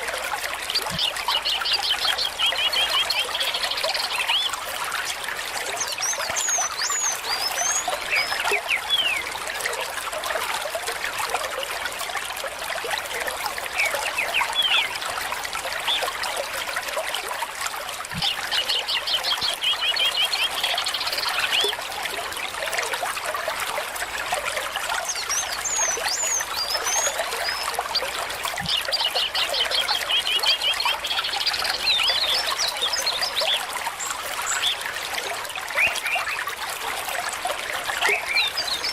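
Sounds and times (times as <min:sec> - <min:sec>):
stream trickling: 0:00.0 - 0:38.9
bird trilled song: 0:05.8 - 0:09.2, 0:13.7 - 0:15.0, 0:25.0 - 0:27.9.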